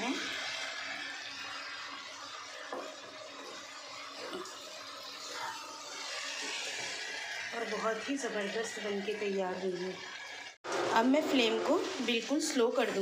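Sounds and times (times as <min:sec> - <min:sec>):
okra sizzling in oil: 0:00.0 - 0:13.0
spatula scraping a pan: 0:00.4 - 0:10.6.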